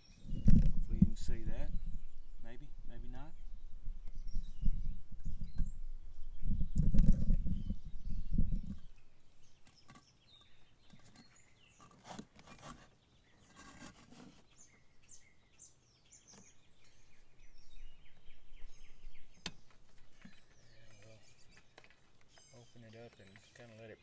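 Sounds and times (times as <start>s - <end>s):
small bird chirps: 0.0s - 24.0s.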